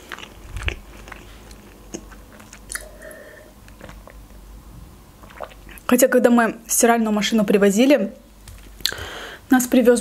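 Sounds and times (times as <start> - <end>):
chewing with wet mouth clicks: 0.0 - 3.0, 5.2 - 5.9.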